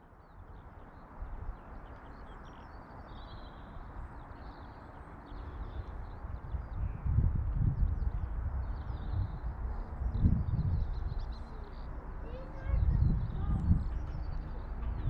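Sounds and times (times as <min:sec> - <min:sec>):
small birds chirping: 0:00.1 - 0:15.0
low uneven rumble: 0:05.6 - 0:15.0.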